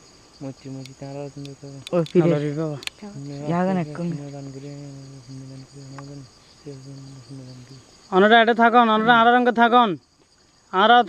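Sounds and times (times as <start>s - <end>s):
crickets chirring: 0.0s - 11.0s
man intoning: 0.4s - 7.8s.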